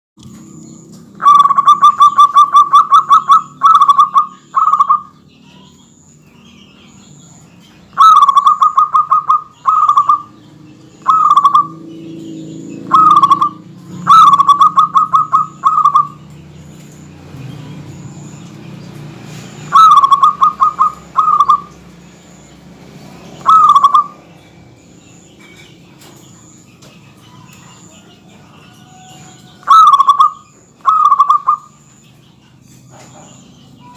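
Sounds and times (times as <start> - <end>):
dove cooing: 1.2 - 5.2, 7.9 - 10.4, 11.0 - 16.4, 19.3 - 21.9, 23.4 - 24.2, 27.4 - 31.8.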